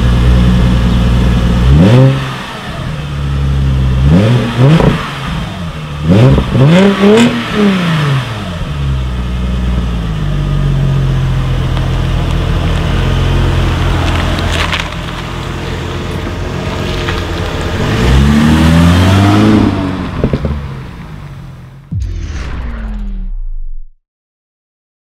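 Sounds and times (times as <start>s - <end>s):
car engine idling and pulling away: 0.0s - 22.0s.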